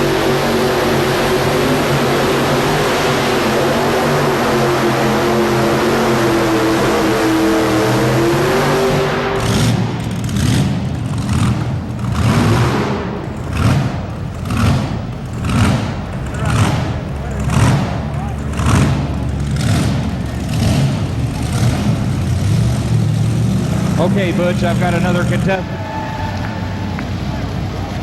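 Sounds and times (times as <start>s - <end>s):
tractor engine revving: 0.0s - 28.0s.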